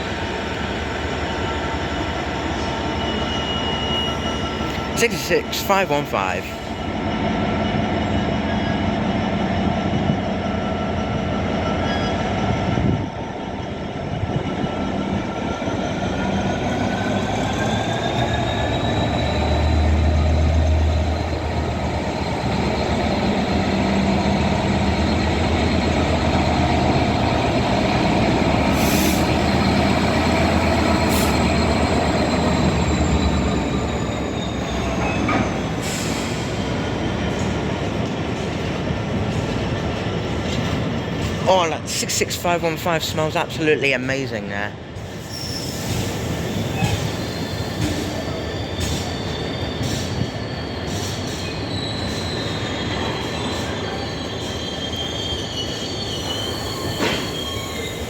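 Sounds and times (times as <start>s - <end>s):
brief high clicks or squeals: 45.2s - 58.0s.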